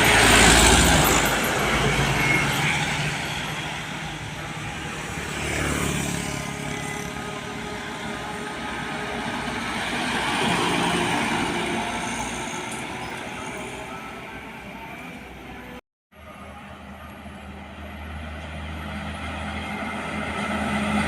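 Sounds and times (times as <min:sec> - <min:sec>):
vehicles driving past: 0:00.0 - 0:12.8.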